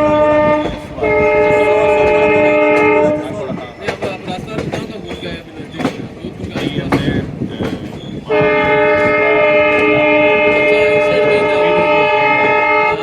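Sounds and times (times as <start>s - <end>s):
locomotive air horn blast: 0.0s - 3.4s, 8.3s - 13.0s
moving train rumble: 0.0s - 13.0s.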